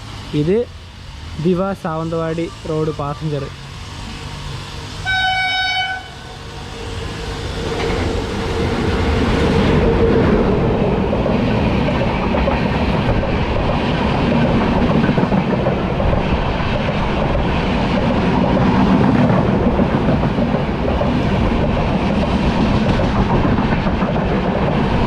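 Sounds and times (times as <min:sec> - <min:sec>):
passenger train rumble and clatter: 0:00.0 - 0:25.0
train horn blast: 0:05.0 - 0:06.3.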